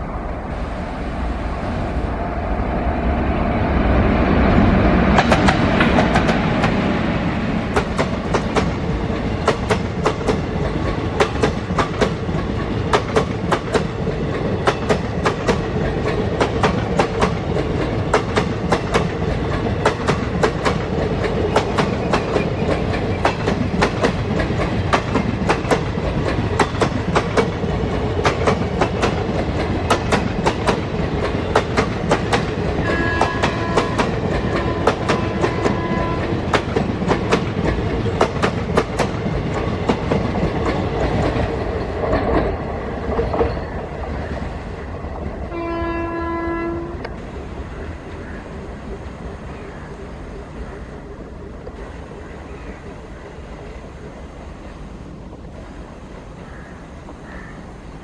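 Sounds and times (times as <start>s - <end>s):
locomotive passing at speed: 0.0s - 45.8s
wheels clicking over rail joints: 7.7s - 44.1s.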